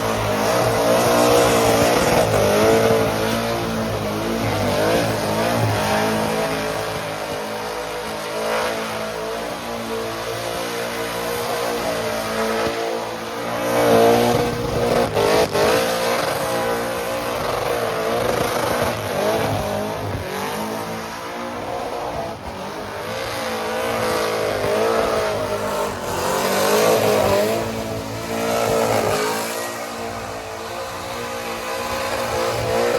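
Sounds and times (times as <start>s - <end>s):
truck engine revving high: 0.0s - 32.9s.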